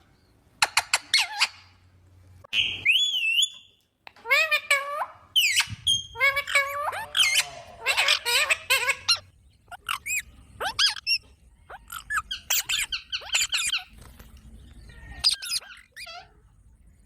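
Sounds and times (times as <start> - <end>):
parrots squawking and screeching: 0.7 - 1.7, 4.2 - 14.0, 14.8 - 16.5.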